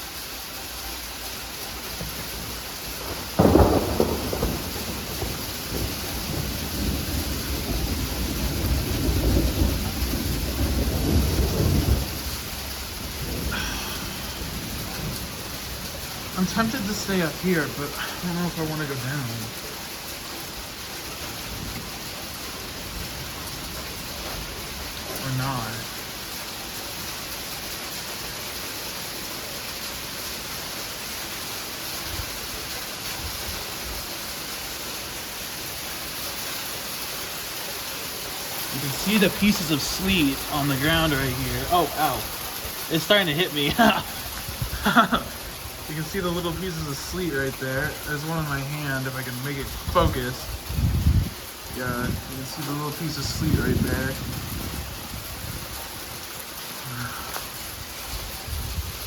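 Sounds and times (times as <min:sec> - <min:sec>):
sleet and freezing rain pattering: 0:00.0 - 0:59.0
thunder rumbling: 0:01.4 - 0:20.0, 0:20.6 - 0:26.8, 0:38.5 - 0:59.0.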